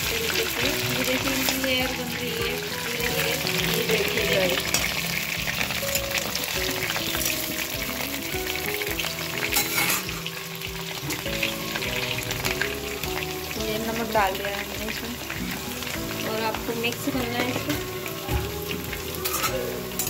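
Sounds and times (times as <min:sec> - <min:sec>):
steel spoon turning in pan: 0:00.0 - 0:13.0, 0:18.7 - 0:20.0
potatoes sizzling in hot oil: 0:00.0 - 0:20.0.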